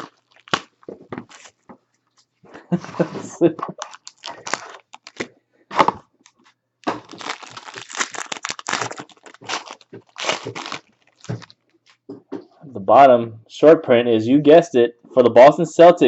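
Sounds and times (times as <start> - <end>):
wrapper crinkling and ripping: 0.0 - 1.6, 3.6 - 12.0.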